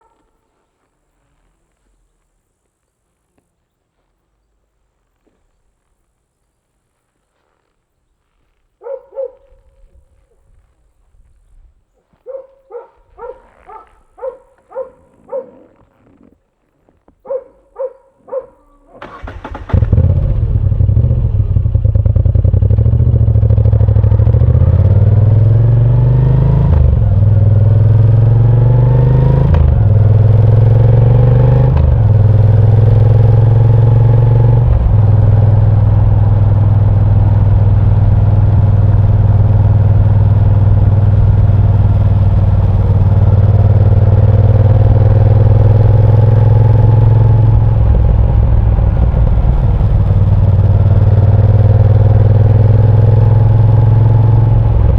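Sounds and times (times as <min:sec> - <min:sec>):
motorcycle engine accelerating: 0:19.0 - 0:54.9.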